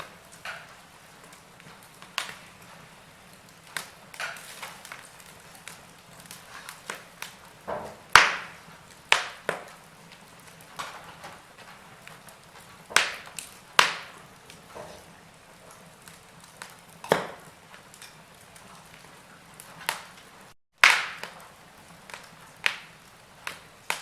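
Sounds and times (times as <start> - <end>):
faint steady hiss: 0.0 - 24.0
wood fire crackling: 0.0 - 24.0
sharp pops: 7.7 - 9.8, 12.9 - 14.2, 17.0 - 17.4, 20.8 - 21.4.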